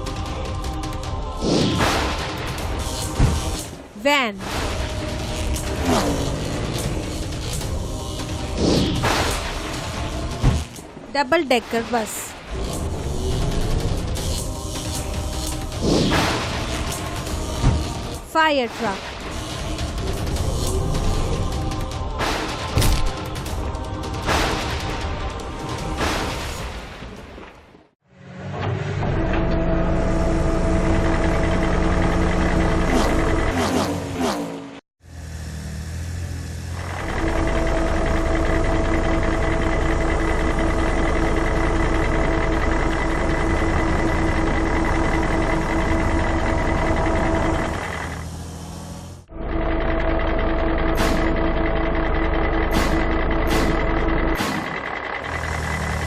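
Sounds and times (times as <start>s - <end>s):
truck engine running: 0.0s - 1.4s, 2.0s - 26.2s, 28.1s - 56.0s
cartoon engine sound effect: 29.6s - 34.6s.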